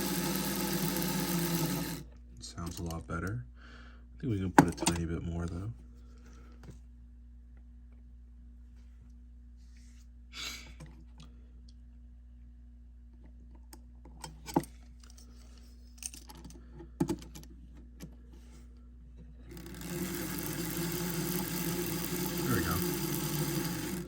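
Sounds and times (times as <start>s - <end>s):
small electric motor whirring: 0.0s - 2.1s, 19.5s - 24.0s.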